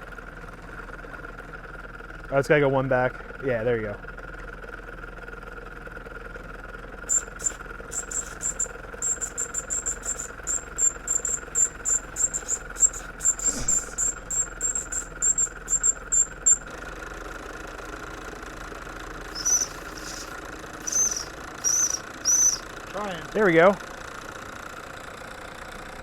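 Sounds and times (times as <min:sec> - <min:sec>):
crickets chirping rapidly: 0:07.1 - 0:16.7, 0:19.3 - 0:22.7
faint steady hum: 0:07.1 - 0:16.7, 0:19.3 - 0:22.8
lower arching chirps: 0:07.1 - 0:16.7, 0:19.3 - 0:22.7.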